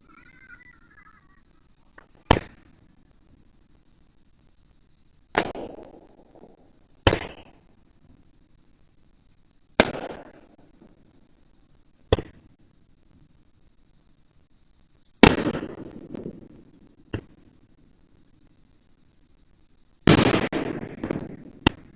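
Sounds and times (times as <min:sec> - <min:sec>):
fireworks bangs: 0:02.1 - 0:02.9, 0:05.3 - 0:07.7, 0:09.8 - 0:11.0, 0:15.2 - 0:17.6, 0:20.0 - 0:21.9.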